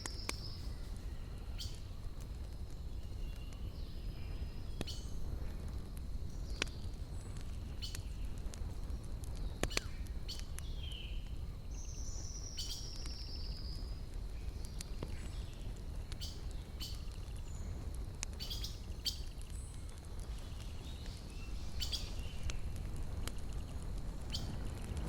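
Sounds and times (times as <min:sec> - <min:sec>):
campfire crackling: 0:00.0 - 0:25.0.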